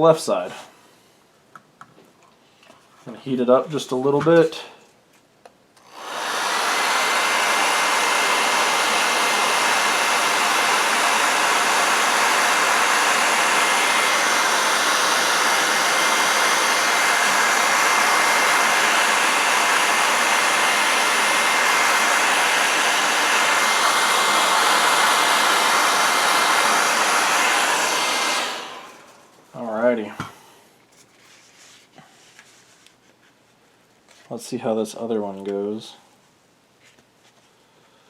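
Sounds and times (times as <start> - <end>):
hot-air blower running: 5.8 - 30.6.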